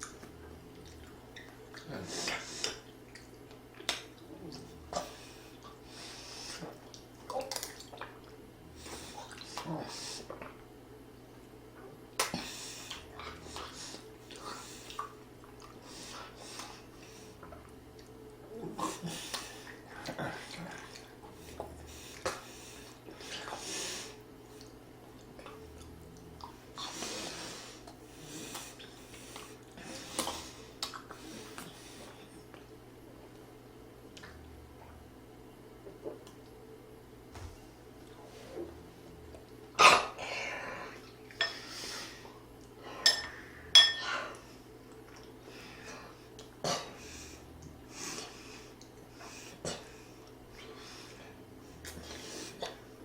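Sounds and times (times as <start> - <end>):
person chewing food: 0.0 - 5.8, 12.2 - 23.6, 24.4 - 33.4
utensils clinking against dishes: 43.0 - 44.2.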